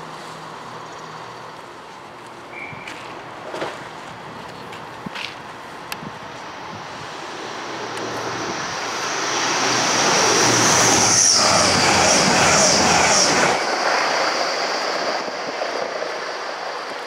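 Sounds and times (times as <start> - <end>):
train passing close by: 0.0 - 17.0
high-pitched whine: 6.2 - 17.0.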